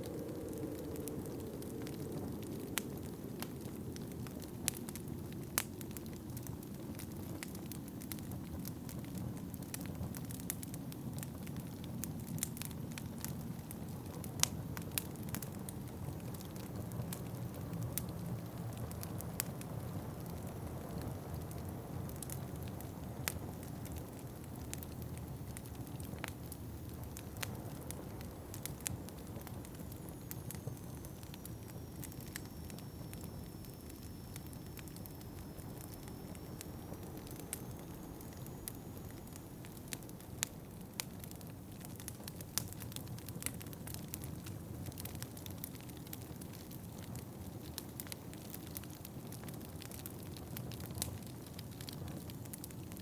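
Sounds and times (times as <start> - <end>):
low rumble of wind: 0.0 - 53.0
wood fire crackling and popping: 0.0 - 53.0
faint high whistling tone: 27.2 - 40.6.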